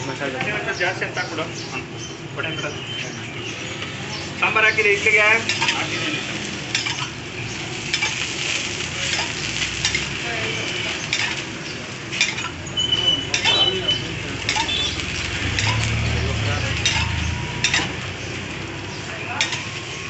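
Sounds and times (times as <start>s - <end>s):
food sizzling on a griddle: 3.4s - 20.0s
metal cup and spatula clinks: 13.3s - 13.7s.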